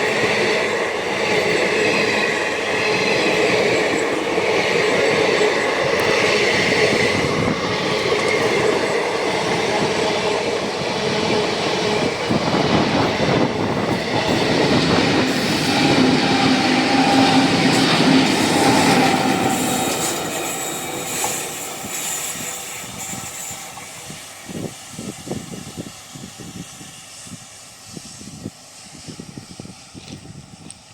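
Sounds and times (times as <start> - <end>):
train wheels clattering: 0.0 - 24.7
train wheels squealing: 0.0 - 30.9.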